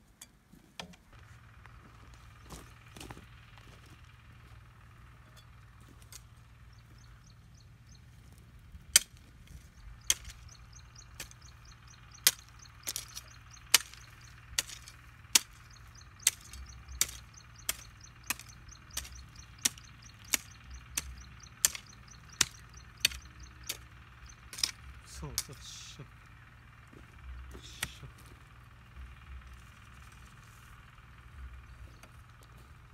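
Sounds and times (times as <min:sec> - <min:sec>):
sharp chopping strikes: 0:08.9 - 0:09.2, 0:10.0 - 0:10.5, 0:12.2 - 0:14.0, 0:16.2 - 0:23.8.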